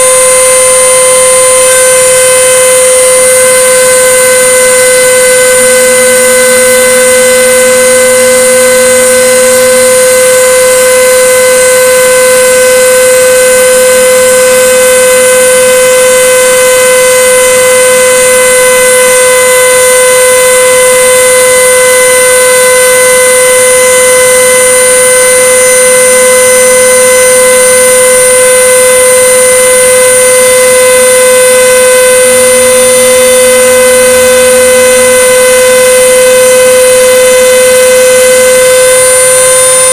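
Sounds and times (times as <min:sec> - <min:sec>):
router spindle high whine: 0:00.0 - 0:39.9
low machine hum: 0:27.6 - 0:39.9.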